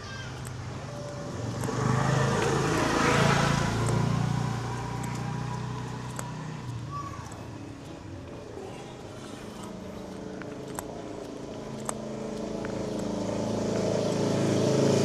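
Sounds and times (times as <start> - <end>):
vehicle driving past: 0.4 - 6.7, 11.4 - 15.0.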